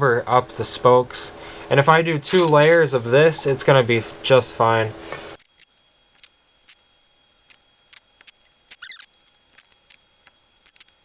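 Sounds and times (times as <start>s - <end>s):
brief wavering squeak: 8.7s - 9.2s.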